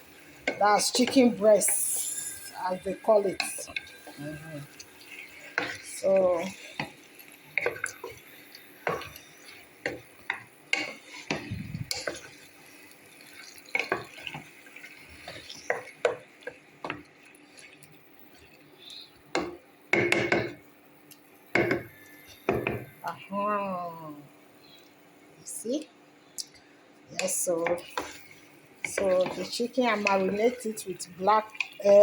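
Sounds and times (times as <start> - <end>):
utensils clinking against pot: 0.4 - 17.1, 27.1 - 30.8.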